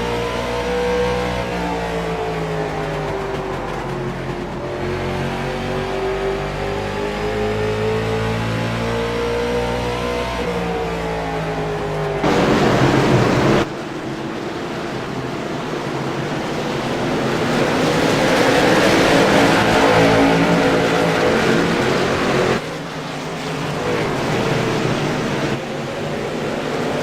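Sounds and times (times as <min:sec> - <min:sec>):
racing car engines: 0:00.0 - 0:27.0
rush of noise: 0:12.0 - 0:27.0.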